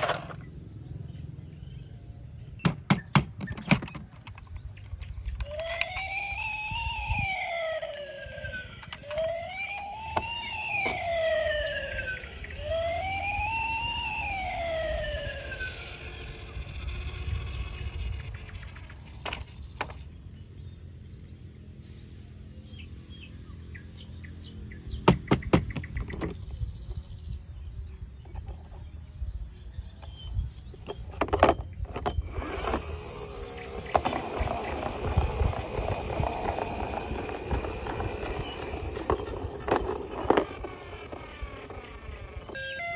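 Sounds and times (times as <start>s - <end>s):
siren wailing: 5.4s - 18.4s, 32.4s - 42.9s.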